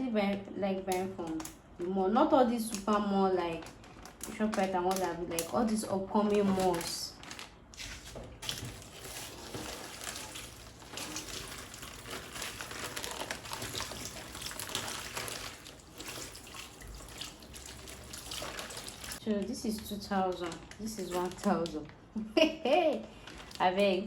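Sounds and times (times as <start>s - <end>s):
tap water splashing into sink: 8.4s - 19.2s.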